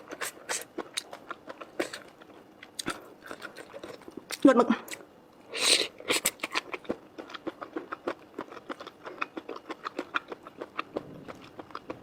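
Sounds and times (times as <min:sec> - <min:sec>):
chewing noodles with wet smacks: 0:06.0 - 0:12.0.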